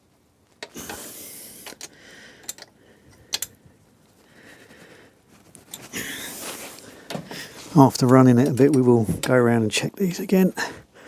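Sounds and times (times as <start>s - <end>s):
sharp metal clicks: 0.6s - 3.6s.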